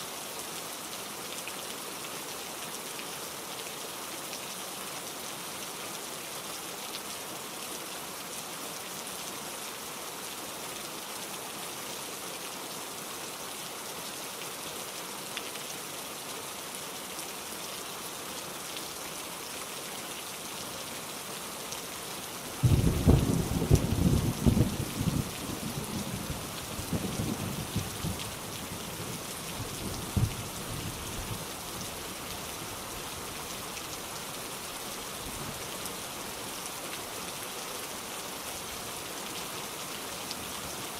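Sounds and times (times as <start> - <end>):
steady rain: 0.0 - 40.9
thunder clap rumbling: 22.6 - 25.3.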